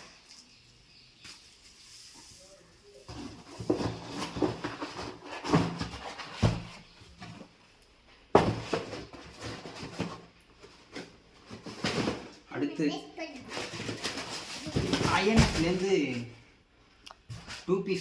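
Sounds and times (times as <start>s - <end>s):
cardboard rustling and knocks: 3.1s - 7.5s, 8.3s - 12.4s, 13.5s - 15.8s.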